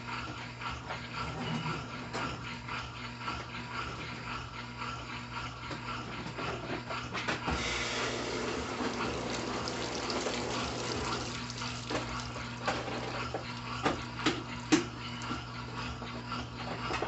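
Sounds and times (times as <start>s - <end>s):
washing machine low hum: 7.4s - 17.0s
washing machine water splashing: 7.6s - 15.4s.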